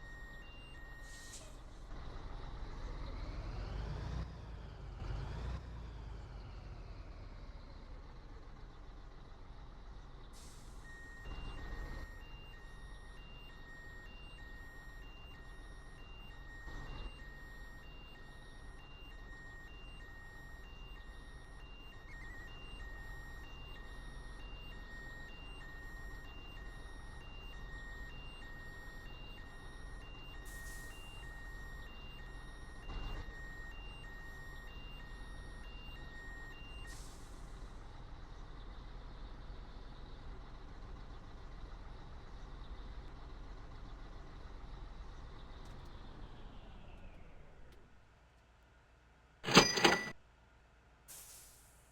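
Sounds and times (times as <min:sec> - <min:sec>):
reversing alarm beeping: 0:00.0 - 0:01.4, 0:10.7 - 0:37.2, 0:49.5 - 0:50.2
diesel truck engine running: 0:00.0 - 0:14.4
thumps: 0:49.4 - 0:50.2.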